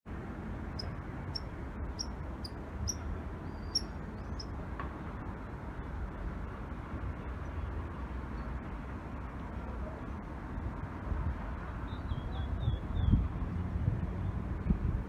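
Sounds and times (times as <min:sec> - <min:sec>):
small bird chirping: 0:00.8 - 0:04.5.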